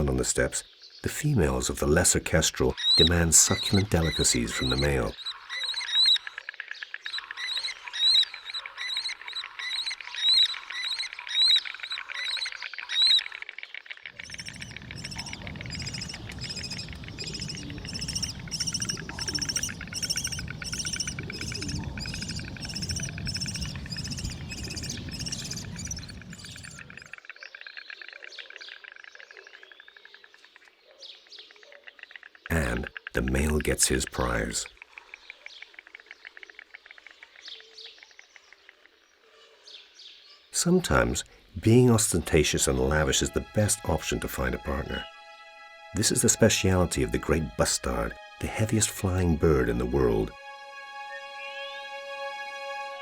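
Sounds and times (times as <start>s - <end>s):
kestrels calling: 0.0s - 52.9s
low rumbling noise: 14.2s - 27.0s.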